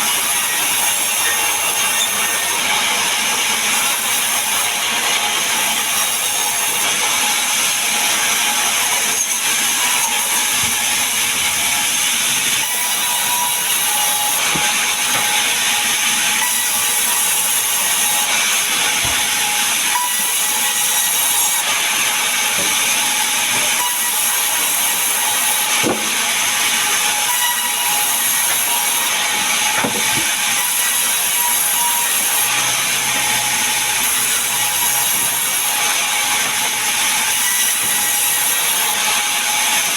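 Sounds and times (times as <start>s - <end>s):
power saw cutting wood: 0.0s - 39.9s.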